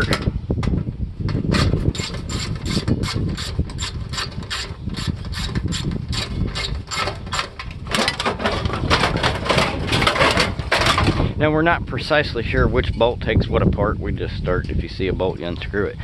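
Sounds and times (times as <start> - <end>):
scraping rattle: 0.0 - 11.4.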